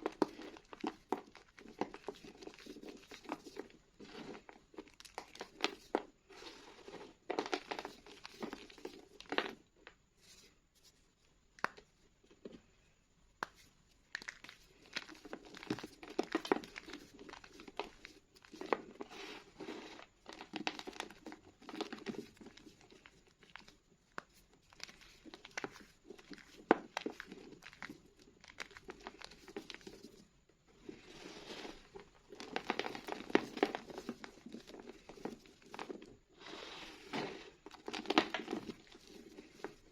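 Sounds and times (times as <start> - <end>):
chalk crunching and crackling: 30.8 - 39.9.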